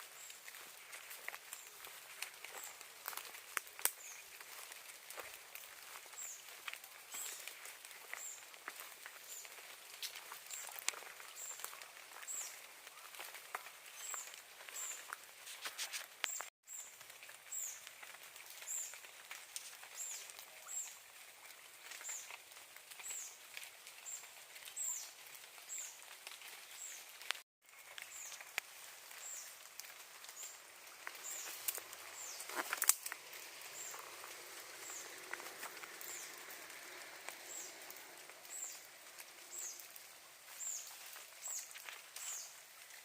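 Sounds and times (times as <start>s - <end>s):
clicks and rustles: 0.2s - 20.5s, 21.8s - 42.5s
small bird chirping: 3.8s - 4.4s, 30.2s - 39.9s, 40.5s - 42.6s.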